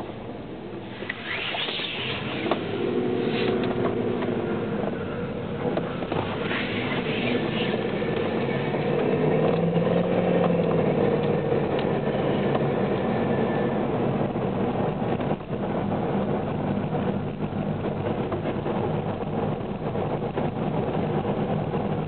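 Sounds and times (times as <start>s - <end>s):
car engine running: 0.0s - 22.0s
short high-pitched squeals: 0.9s - 3.6s.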